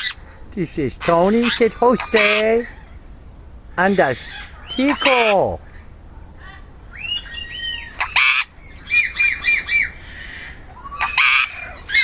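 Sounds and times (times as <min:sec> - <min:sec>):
parrots squawking: 0:00.0 - 0:03.1, 0:03.7 - 0:05.9, 0:06.9 - 0:12.0
short rising-and-falling parrot calls: 0:06.9 - 0:12.0.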